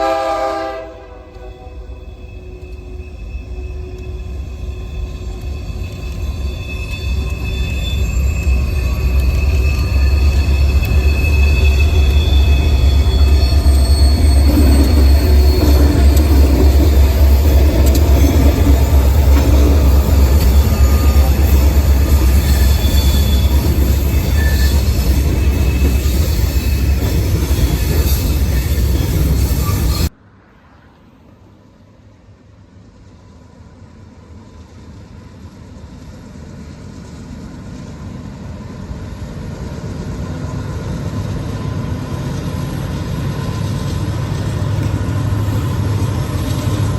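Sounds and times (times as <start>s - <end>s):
train rumbling past: 0.0s - 46.9s
wheel squeal: 1.8s - 30.1s
wheels clicking on rails: 3.9s - 30.1s, 42.1s - 46.9s.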